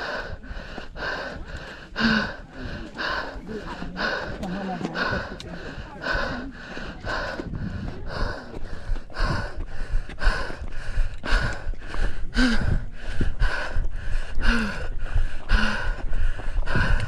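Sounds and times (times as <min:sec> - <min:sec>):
runner breathing hard: 0:00.0 - 0:17.0
wind on microphone: 0:04.0 - 0:17.0.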